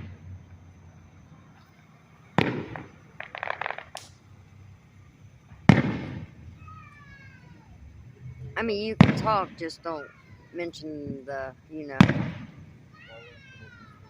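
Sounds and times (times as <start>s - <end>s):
firework bangs: 0.0s - 0.6s, 1.2s - 4.6s, 5.4s - 7.6s, 8.6s - 14.0s
crackling firework pops: 1.6s - 4.3s, 5.5s - 7.0s, 9.0s - 9.7s, 12.0s - 12.8s.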